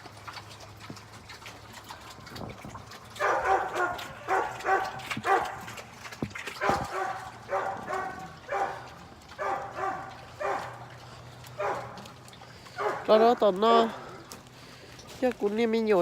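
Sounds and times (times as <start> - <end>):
dog barking: 3.2 - 5.7, 6.6 - 10.8, 11.6 - 12.0, 12.8 - 13.1.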